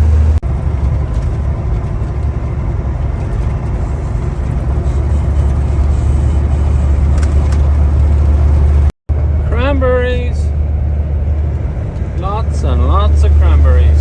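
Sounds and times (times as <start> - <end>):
truck driving on road: 0.0 - 14.0.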